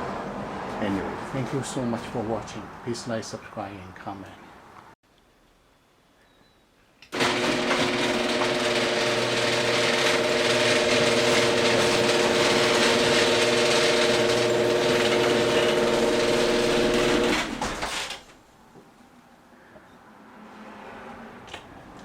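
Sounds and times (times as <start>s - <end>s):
garage door opener motor hum: 7.1s - 18.3s.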